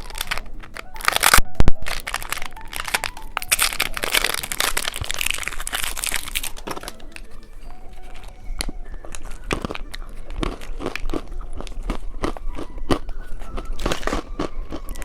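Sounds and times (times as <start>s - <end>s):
sharp plastic cracks: 0.0s - 7.4s
plastic packaging crinkling: 0.0s - 15.0s.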